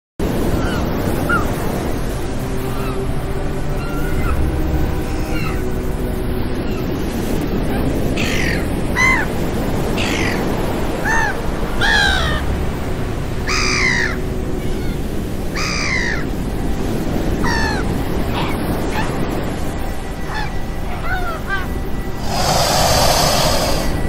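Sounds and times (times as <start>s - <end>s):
birds crying: 2.6s - 3.1s, 3.7s - 5.7s, 7.7s - 9.3s, 10.0s - 12.5s, 13.4s - 16.3s, 17.4s - 19.2s, 20.2s - 24.0s
surf rushing: 22.1s - 24.0s.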